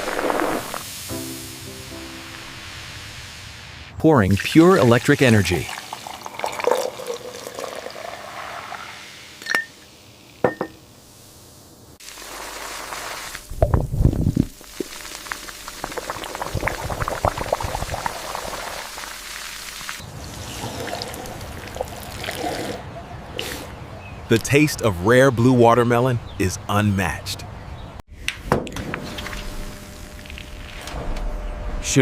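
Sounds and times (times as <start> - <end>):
soda pouring into a glass: 4.4 - 9.1, 14.6 - 19.9
bubbles popping: 13.5 - 20.0, 20.6 - 22.8.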